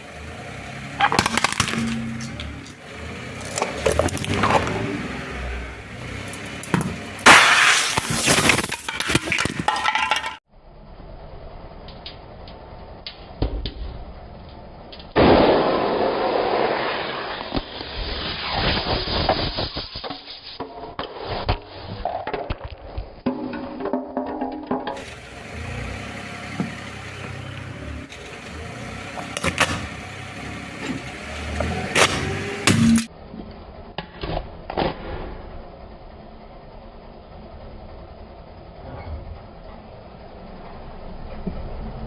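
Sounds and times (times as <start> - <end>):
tyre crushing brittle objects: 1.0 - 2.8, 3.4 - 4.8, 6.8 - 10.3.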